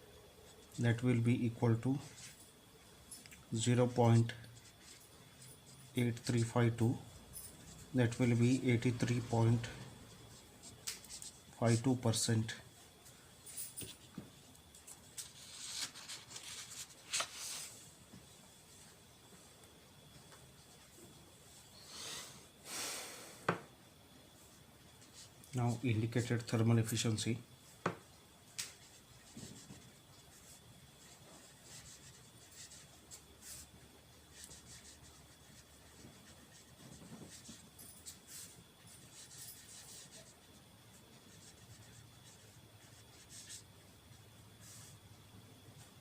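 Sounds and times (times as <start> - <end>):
low room hum: 0.0 - 46.0
pen scratching on paper: 28.7 - 33.7, 34.3 - 40.6.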